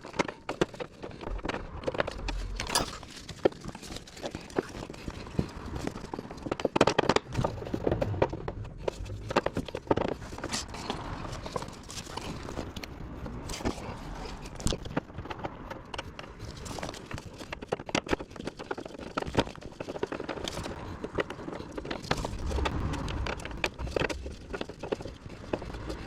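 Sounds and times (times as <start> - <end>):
hand tools and metal parts clinking: 0.0 - 7.8.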